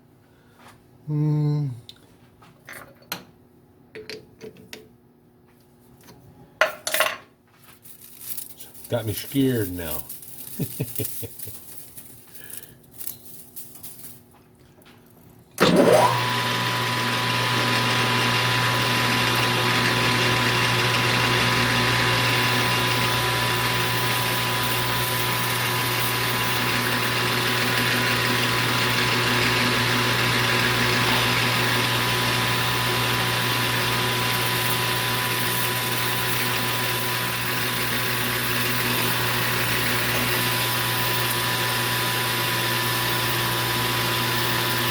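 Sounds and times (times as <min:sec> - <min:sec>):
lathe motor whining and humming: 0:15.6 - 0:44.9.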